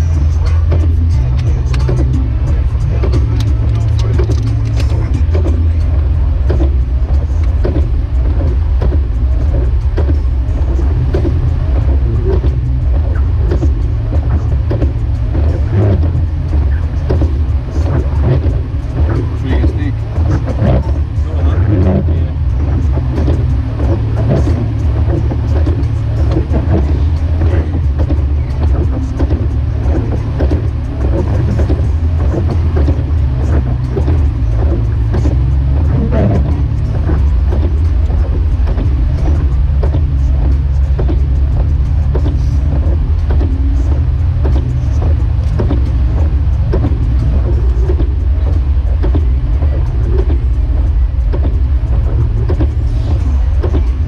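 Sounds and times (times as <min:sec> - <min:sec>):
engine and road drone: 0:00.0 - 0:54.0
tyres rumbling: 0:00.0 - 0:54.0.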